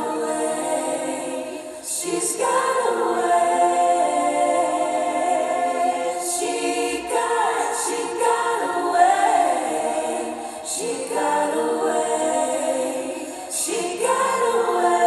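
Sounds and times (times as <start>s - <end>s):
choir of voices: 0.0s - 15.0s.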